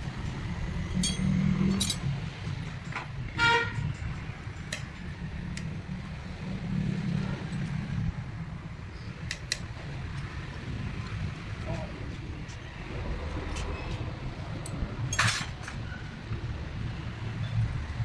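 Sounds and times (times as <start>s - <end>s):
low traffic rumble: 0.0s - 18.0s
vehicle horn beep: 3.4s - 3.8s.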